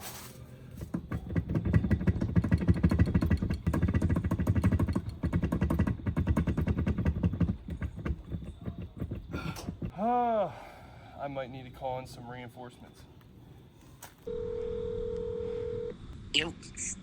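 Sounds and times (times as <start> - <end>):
rapid mechanical rattle of tool: 1.0 - 9.9.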